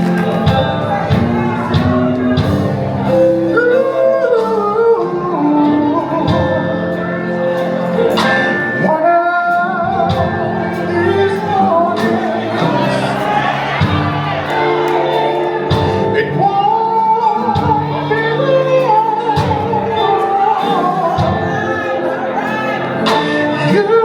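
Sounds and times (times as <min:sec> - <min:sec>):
drum beat: 0:00.0 - 0:03.3, 0:09.9 - 0:18.1, 0:19.3 - 0:22.1
gospel band playing: 0:00.0 - 0:24.0
person singing long held notes: 0:00.0 - 0:24.0.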